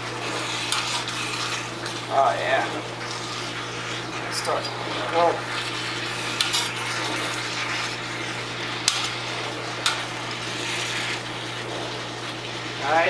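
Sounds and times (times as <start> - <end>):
food sizzling in a skillet: 0.0 - 13.0
utensils clicking against pan: 6.3 - 6.8, 8.8 - 9.2, 9.8 - 10.4.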